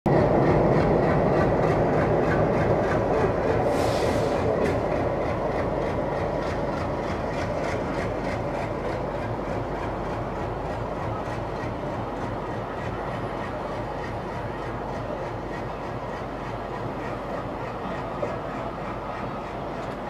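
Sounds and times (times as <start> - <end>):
diesel locomotive engine rumbling: 0.1 - 20.0
brief hiss: 3.7 - 4.5
wheels clicking over rail joints: 4.5 - 20.0.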